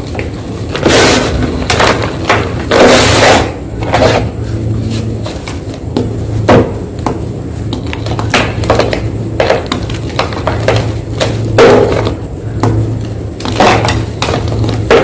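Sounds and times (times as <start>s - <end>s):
low hum: 0.0s - 15.0s
chalk crunching: 2.7s - 5.9s.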